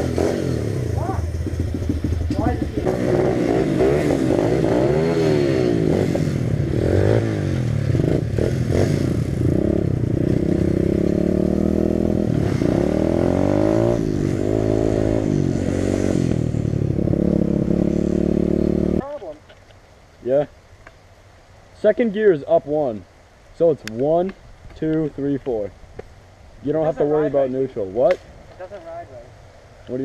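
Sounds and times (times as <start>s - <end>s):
dirt bike engine revving: 0.0s - 19.1s.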